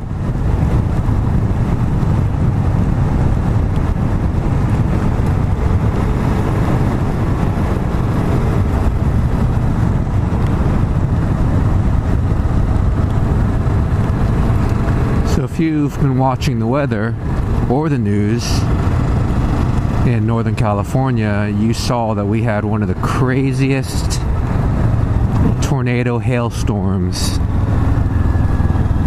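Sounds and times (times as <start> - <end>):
motorcycle engine running: 0.0 - 29.0
wind rush over microphone: 0.0 - 29.0.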